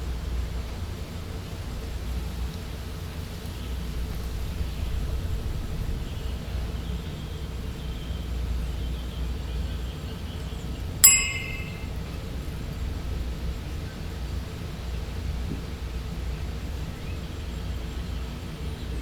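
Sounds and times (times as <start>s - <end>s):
sharp metallic clink: 11.0s - 12.0s.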